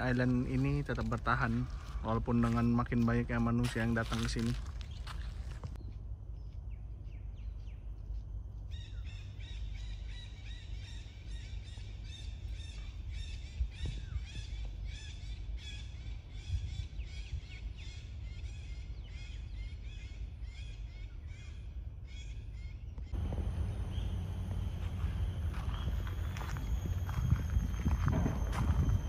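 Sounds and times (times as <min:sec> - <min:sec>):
bird chirping: 0:04.8 - 0:29.0
low rumble: 0:23.0 - 0:29.0.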